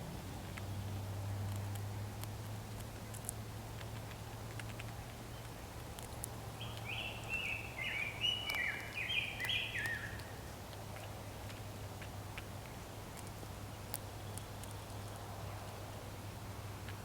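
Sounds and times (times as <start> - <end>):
low steady hum: 0.0 - 17.0
bird whistling call: 6.8 - 10.2.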